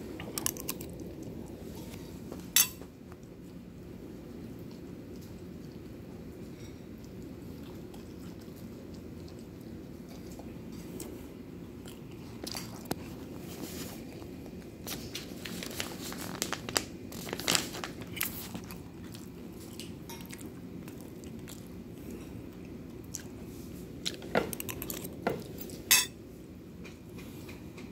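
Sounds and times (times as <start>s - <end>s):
person chewing food: 0.0s - 2.2s, 4.2s - 15.2s, 18.0s - 25.9s
low background hum: 0.0s - 27.9s.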